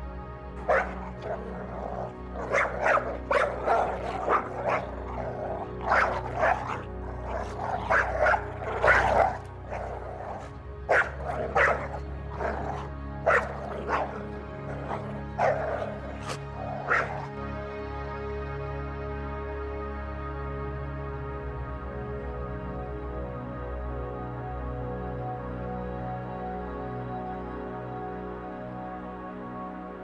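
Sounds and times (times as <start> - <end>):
background music: 0.0 - 30.0
dog barking: 0.6 - 17.3.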